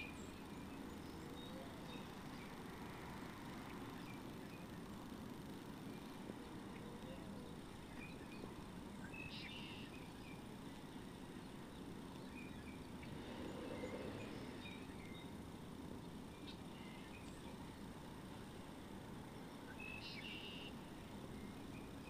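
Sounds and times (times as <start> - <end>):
low background hiss: 0.0 - 22.0
faint short bird calls: 19.9 - 20.8.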